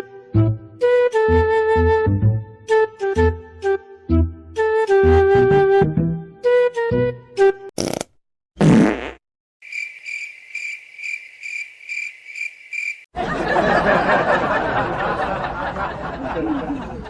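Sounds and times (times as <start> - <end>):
fart sound effect: 7.8 - 9.2
crickets chirping: 9.6 - 13.1.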